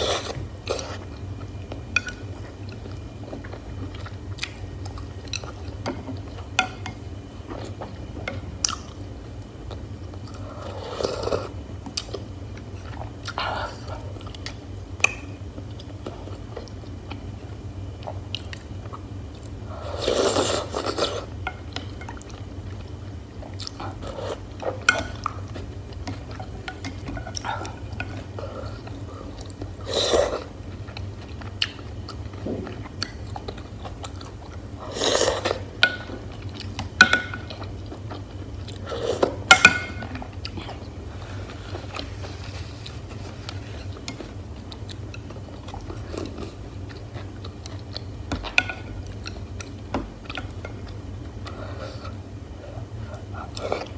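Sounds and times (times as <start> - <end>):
person chewing food: 0.0 - 6.5, 18.0 - 53.9.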